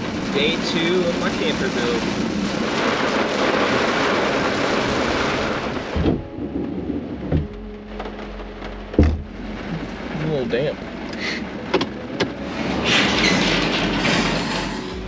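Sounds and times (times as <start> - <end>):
heavy rain falling: 0.0 - 15.0
low steady hum: 5.7 - 15.0
short thumps: 7.3 - 9.4.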